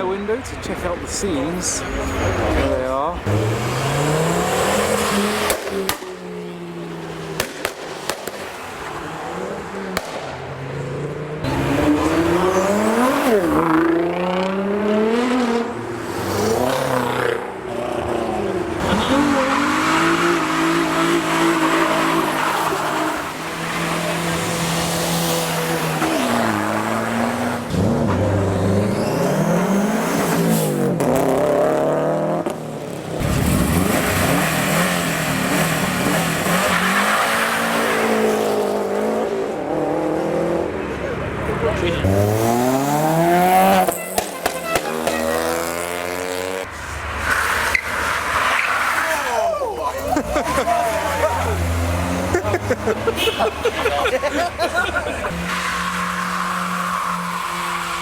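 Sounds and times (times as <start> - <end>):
car engines revving and accelerating: 0.0 - 58.0.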